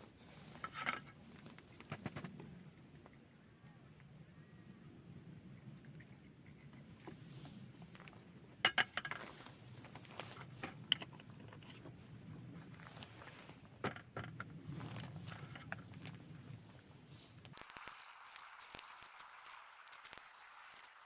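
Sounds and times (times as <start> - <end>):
small hard objects clicking: 17.5 - 21.0.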